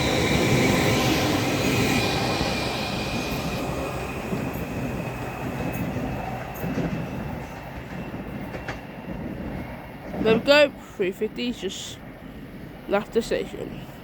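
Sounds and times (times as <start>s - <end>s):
electric train running: 0.0s - 10.5s.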